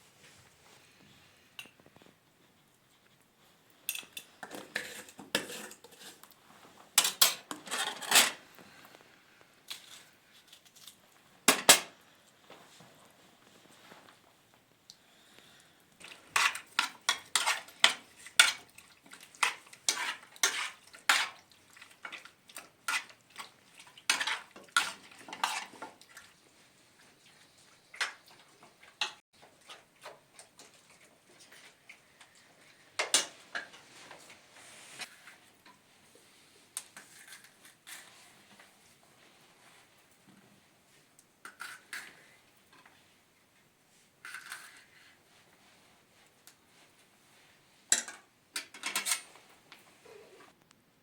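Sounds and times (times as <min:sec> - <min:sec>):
metal utensils clinking on dishes: 0:07.0 - 0:08.4, 0:47.9 - 0:49.3.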